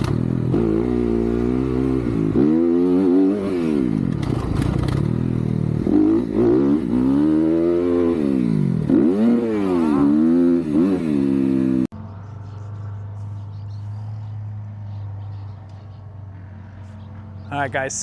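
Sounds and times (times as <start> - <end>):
dirt bike engine revving: 0.0 - 11.9.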